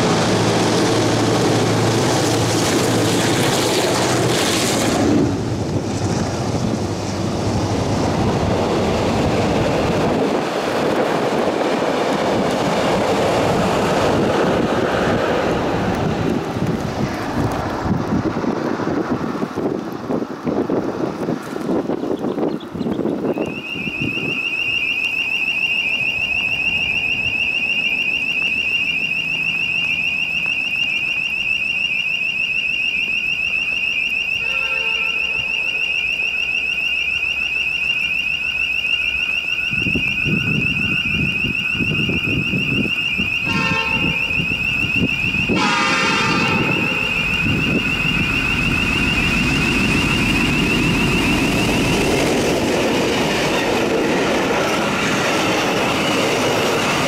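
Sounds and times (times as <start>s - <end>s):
locomotive rumble passing: 0.0s - 24.7s, 41.2s - 57.0s
diesel locomotive horn blasts: 34.4s - 35.8s, 43.4s - 44.5s, 45.4s - 48.2s.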